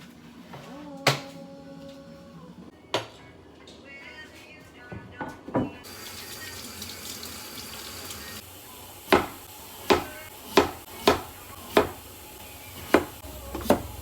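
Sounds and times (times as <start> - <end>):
water running from tap: 5.8 - 14.0
knife chopping on cutting board: 9.1 - 12.0, 12.9 - 13.9.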